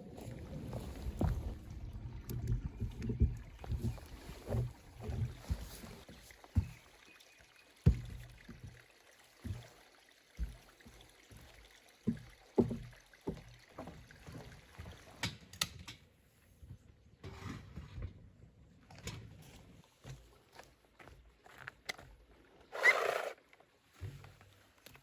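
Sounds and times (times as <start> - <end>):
faint low rumble: 0.0 - 5.6
low thumps and knocks: 0.2 - 6.8, 7.9 - 8.8.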